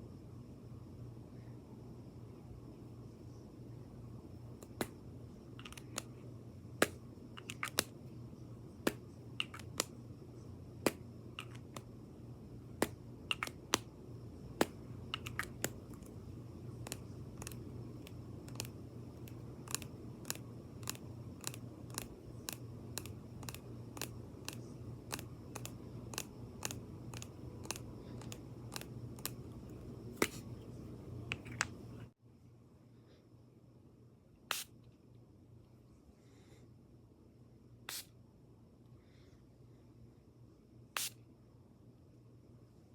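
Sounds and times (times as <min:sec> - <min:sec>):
steady low hum: 0:00.0 - 0:42.9
taps and clicks on makeup items: 0:04.6 - 0:05.0, 0:06.8 - 0:07.9, 0:08.8 - 0:09.9, 0:10.9 - 0:11.9, 0:12.8 - 0:13.9, 0:14.6 - 0:15.8.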